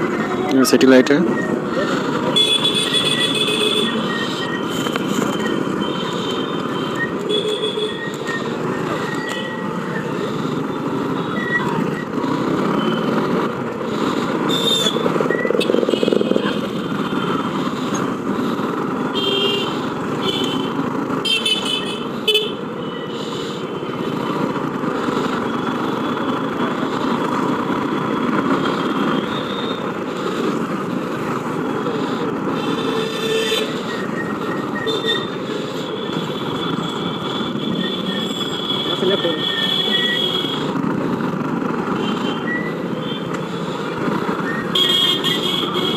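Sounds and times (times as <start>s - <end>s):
motorcycle engine and road noise: 0.0s - 45.9s
vehicle horn toots: 44.7s - 45.9s.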